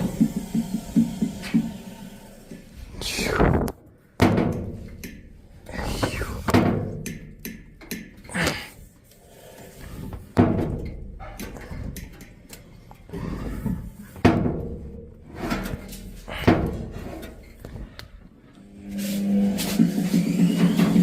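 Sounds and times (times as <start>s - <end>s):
washing machine banging: 0.0s - 2.7s, 4.2s - 5.3s, 6.5s - 8.2s, 10.3s - 12.4s, 14.1s - 17.0s.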